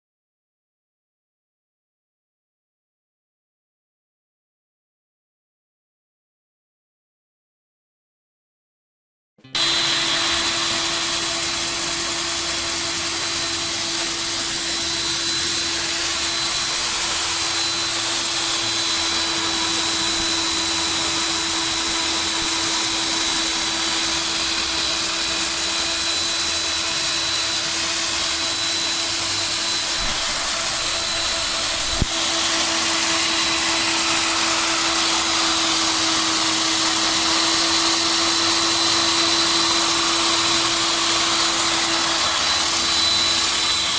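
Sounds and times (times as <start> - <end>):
core drill motor whining: 9.4 - 43.9.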